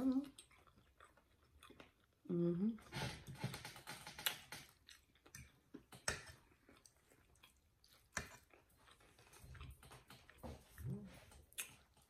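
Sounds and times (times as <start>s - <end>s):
people chewing: 0.0s - 12.0s.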